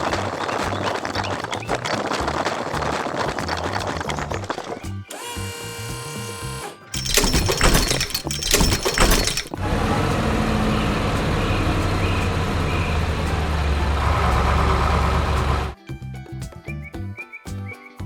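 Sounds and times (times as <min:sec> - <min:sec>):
rock breaking and shattering: 0:00.0 - 0:04.8
heavy vehicle engine rumbling: 0:07.0 - 0:15.8.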